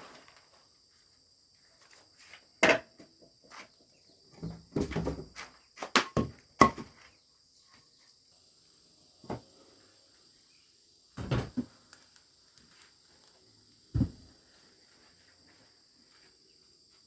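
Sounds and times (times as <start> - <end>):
sharp knocks and thuds: 11.2 - 11.7, 13.9 - 14.3.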